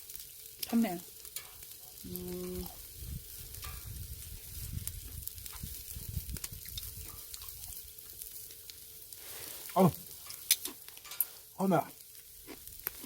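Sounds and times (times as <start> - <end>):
meat sizzling on a grill: 0.0 - 13.0
person humming: 2.1 - 2.8.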